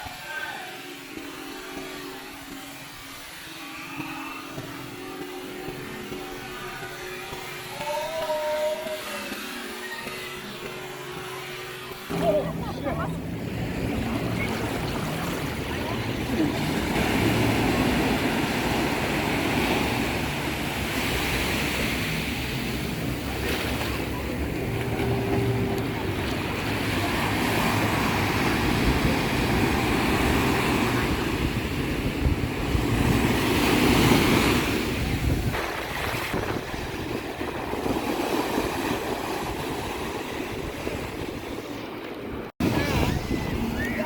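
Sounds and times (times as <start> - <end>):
ocean surf washing in: 12.1 - 44.0
wind buffeting microphone: 12.1 - 44.0.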